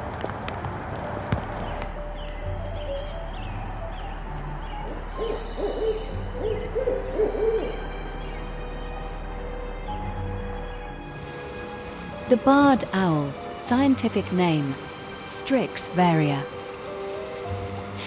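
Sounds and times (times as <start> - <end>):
owl rolling hoots: 1.5 - 11.2.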